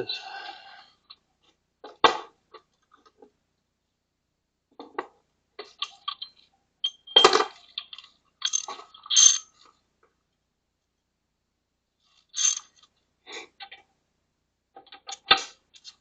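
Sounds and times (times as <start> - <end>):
metal hand tools clinking: 7.2 - 9.5, 12.4 - 12.7.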